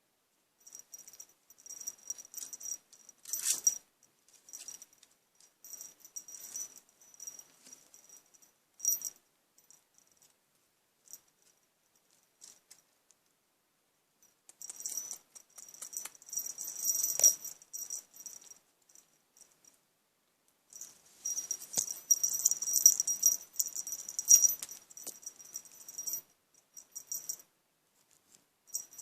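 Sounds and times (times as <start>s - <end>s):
jingle bell rattling: 0.6s - 10.3s, 14.6s - 19.8s, 20.7s - 27.5s, 28.7s - 29.0s.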